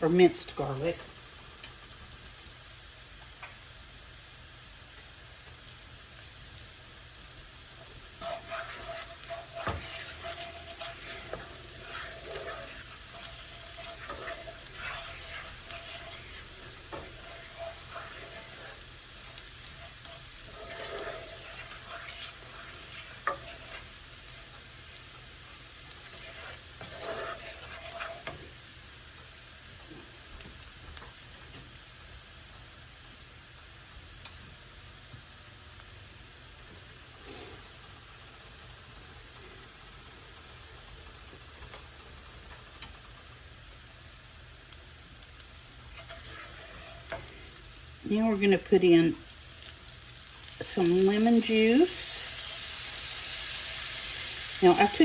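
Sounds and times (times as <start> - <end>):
food sizzling in a skillet: 0.0 - 55.0
scraping in a pan: 7.8 - 28.7, 37.2 - 37.7, 45.7 - 55.0.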